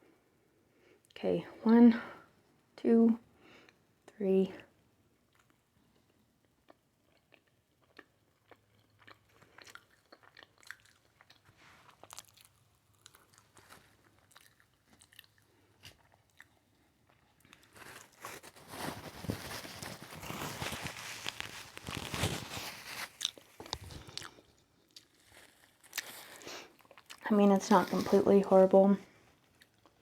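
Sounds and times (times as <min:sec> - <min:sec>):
mouth chewing food: 0:05.2 - 0:28.6, 0:29.4 - 0:30.0.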